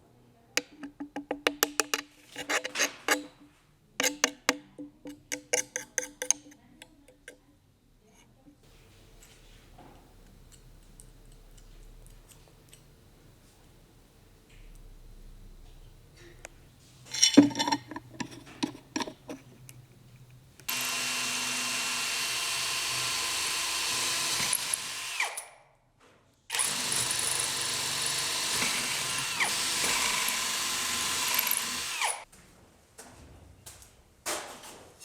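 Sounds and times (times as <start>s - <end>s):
handling clicks and knocks: 0.6s - 3.4s, 16.2s - 20.4s
power tool running: 20.7s - 25.4s, 26.5s - 32.2s.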